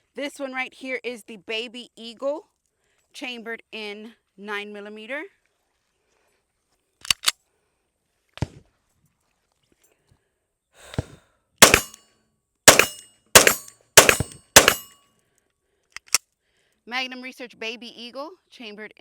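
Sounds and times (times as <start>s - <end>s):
gun click: 7.0s - 7.3s, 11.6s - 12.0s, 12.7s - 14.9s, 16.0s - 16.2s
pistol shots: 11.6s - 12.0s, 12.7s - 14.9s.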